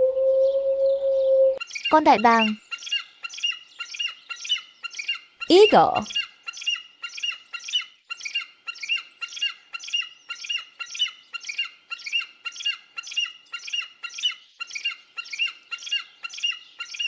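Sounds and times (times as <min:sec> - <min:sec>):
eagle piping squeals: 0:06.1 - 0:17.0.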